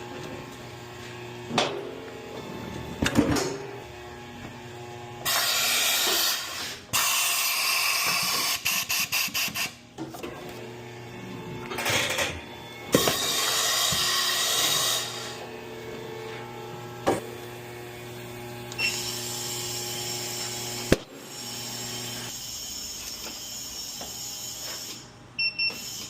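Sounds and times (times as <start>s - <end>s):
pneumatic air tool bursts: 5.2s - 9.8s, 12.9s - 15.4s, 18.8s - 26.0s.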